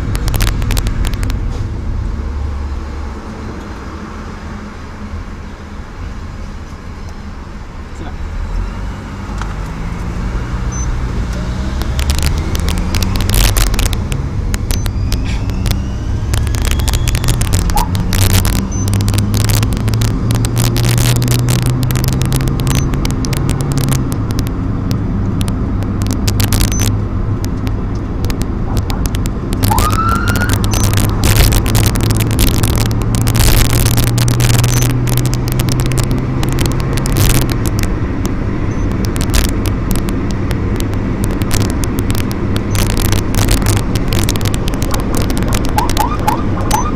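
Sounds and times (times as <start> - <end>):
short crackling clicks: 0.0 - 1.4, 11.6 - 46.9
road noise: 0.0 - 46.9
vehicle engine drone: 0.0 - 46.9.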